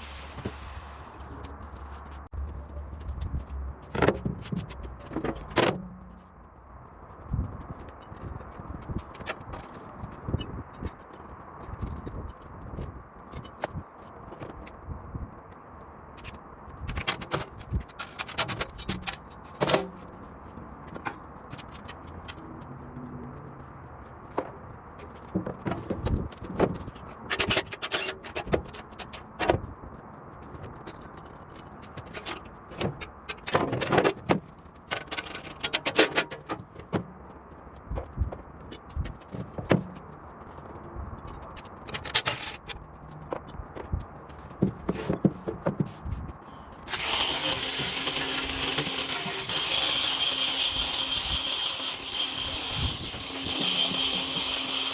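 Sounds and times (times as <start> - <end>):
metal tools clinking and scraping: 27.3 - 29.2, 34.9 - 36.6, 41.2 - 42.8.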